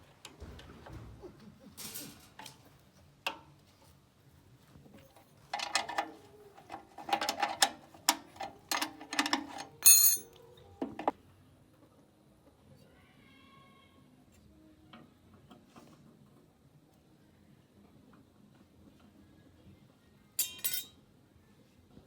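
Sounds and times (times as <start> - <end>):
hand tools clinking on metal: 5.5 - 10.4, 20.4 - 21.0
sharp ringing metal strikes: 20.4 - 20.9.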